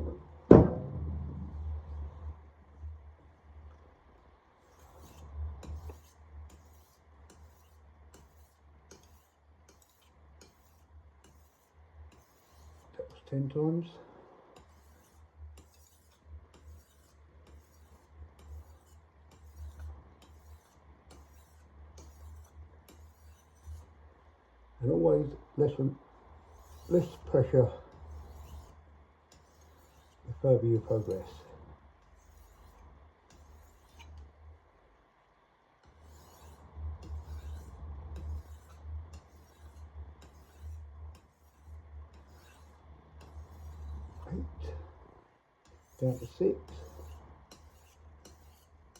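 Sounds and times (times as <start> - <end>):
knife strokes on whetstone: 4.6 - 13.0, 14.6 - 24.0, 26.5 - 34.3, 35.8 - 44.8, 45.6 - 48.9.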